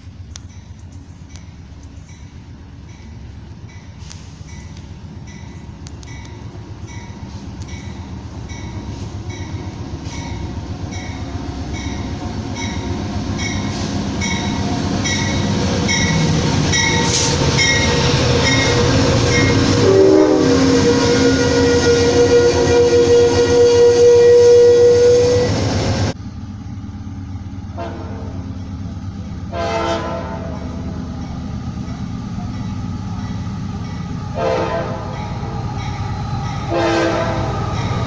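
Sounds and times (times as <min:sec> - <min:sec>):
train approaching: 0:00.0 - 0:38.0
train bell ringing: 0:00.1 - 0:24.9, 0:30.3 - 0:38.0
locomotive horn chord: 0:08.6 - 0:26.2, 0:27.7 - 0:31.3, 0:33.2 - 0:38.0.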